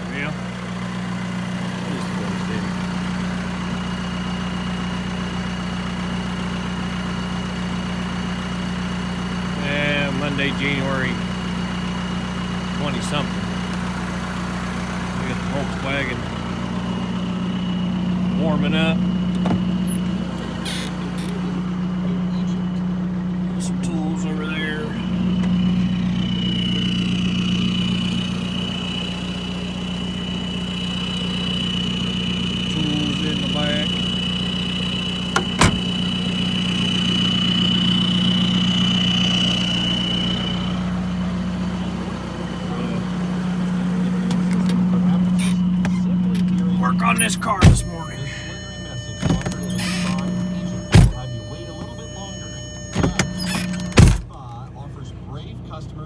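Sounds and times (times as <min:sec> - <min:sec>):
car engine idling: 0:00.0 - 0:56.0
high-pitched whine: 0:15.0 - 0:55.9.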